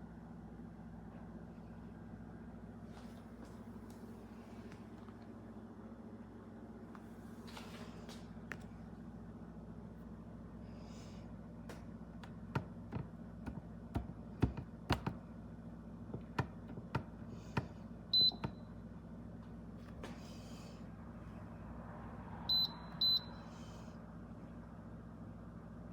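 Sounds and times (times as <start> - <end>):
clicks and taps on rice cooker: 12.2 - 15.2
rice cooker beep: 18.1 - 18.8, 22.5 - 23.4.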